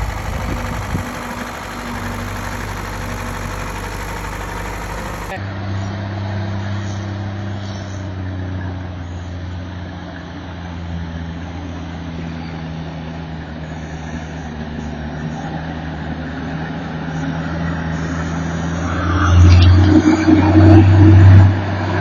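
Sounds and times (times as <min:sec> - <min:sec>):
heavy machinery engine running: 0:00.0 - 0:05.5.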